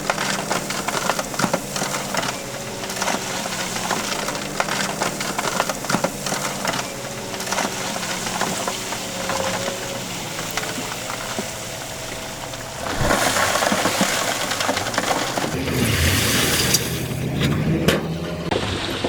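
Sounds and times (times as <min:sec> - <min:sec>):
heavy machinery engine running: 0:00.0 - 0:19.0.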